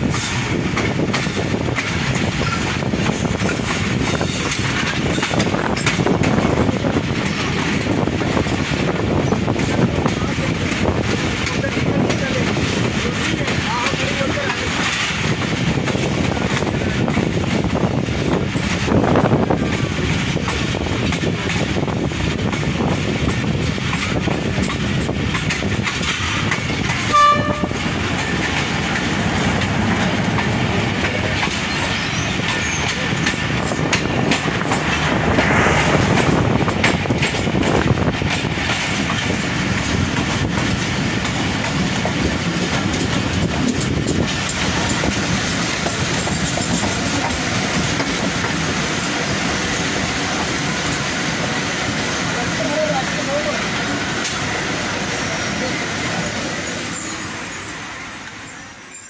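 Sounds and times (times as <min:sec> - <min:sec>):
passing train: 0:00.0 - 0:59.0
train rolling on rails: 0:00.0 - 0:59.0
locomotive horn blast: 0:27.1 - 0:27.9.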